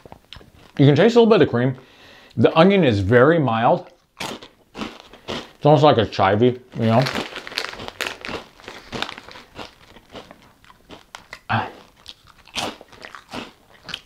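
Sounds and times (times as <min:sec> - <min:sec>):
crunchy chewing of cheese puffs: 0:00.0 - 0:00.9, 0:03.8 - 0:05.7, 0:06.7 - 0:14.0.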